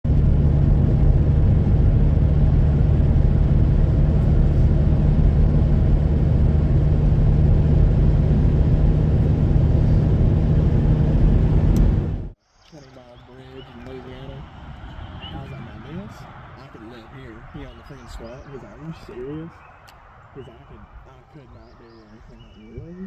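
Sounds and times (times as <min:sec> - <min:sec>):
engine running: 0:00.0 - 0:12.4.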